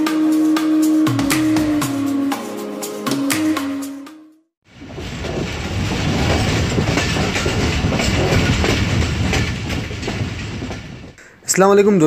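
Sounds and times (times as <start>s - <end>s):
irregular wheel clatter: 4.7s - 11.2s
train wheels rumbling on rails: 4.7s - 11.2s.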